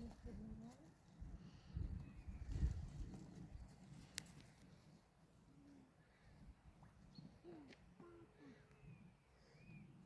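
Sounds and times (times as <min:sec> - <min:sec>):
birds cooing: 0:07.1 - 0:10.0.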